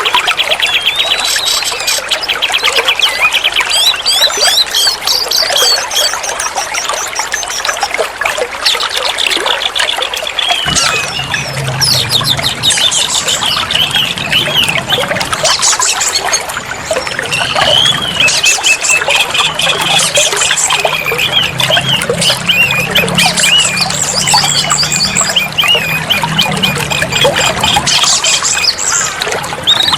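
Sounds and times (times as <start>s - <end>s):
bird singing chirps and warbles: 0.0s - 29.9s
running water rushing: 0.0s - 29.9s.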